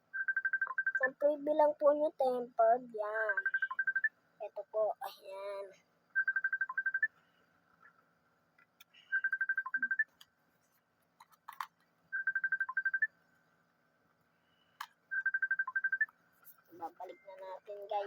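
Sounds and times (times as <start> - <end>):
phone ringtone beeps: 0.2 - 1.2, 3.3 - 4.1, 6.2 - 7.2, 9.1 - 10.2, 12.1 - 13.1, 15.1 - 16.2.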